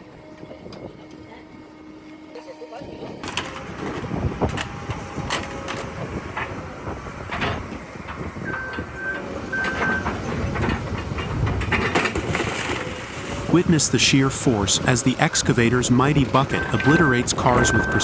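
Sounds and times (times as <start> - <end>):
diesel engine running: 0.0 - 18.0
metal crunching and clanking: 3.2 - 18.0
short high beeps: 16.4 - 18.0.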